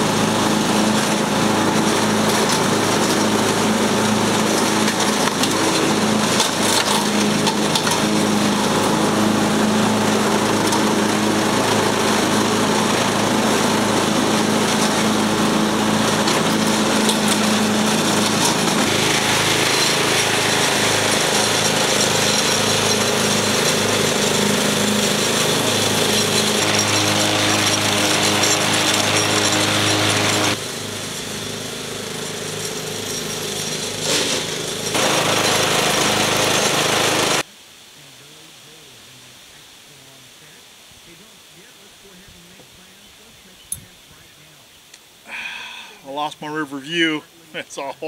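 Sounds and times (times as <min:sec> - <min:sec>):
lawn mower engine running: 0:00.0 - 0:37.5.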